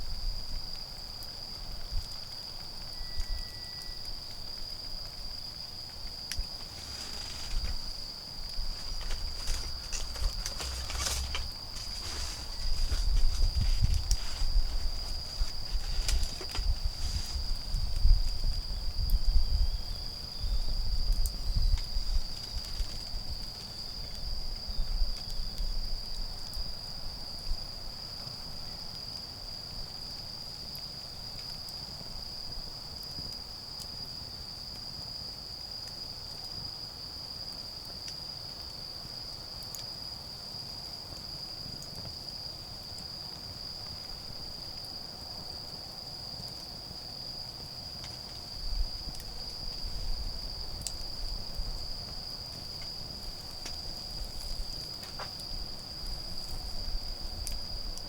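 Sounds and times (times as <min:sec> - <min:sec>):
insects trilling: 0:00.0 - 0:58.0
wood fire crackling: 0:00.5 - 0:19.0, 0:40.4 - 0:58.0
rustling and thumping handling noise: 0:06.5 - 0:18.2.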